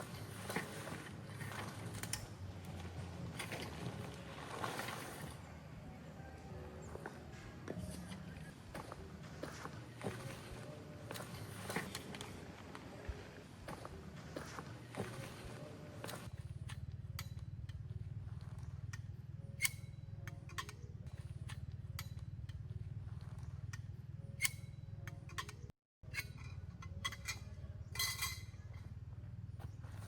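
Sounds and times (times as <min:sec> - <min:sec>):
steady low hum: 0:00.0 - 0:30.0
utensils clinking: 0:08.9 - 0:16.4, 0:19.5 - 0:22.4, 0:24.3 - 0:28.8.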